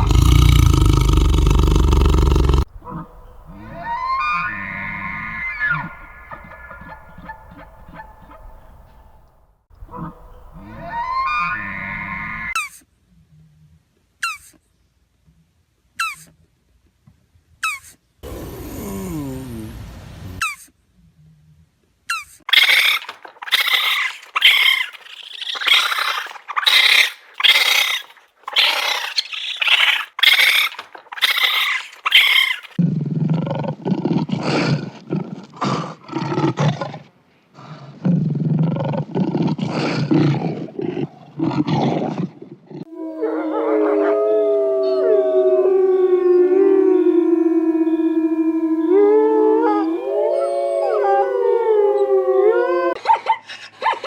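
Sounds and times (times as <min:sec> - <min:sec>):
long wavering howling calls: 0:00.0 - 0:12.6, 0:22.5 - 0:32.8, 0:42.9 - 0:53.0
low coarse animal calls: 0:00.0 - 0:12.6, 0:22.5 - 0:32.8, 0:42.8 - 0:53.0
short high animal calls: 0:22.5 - 0:32.8.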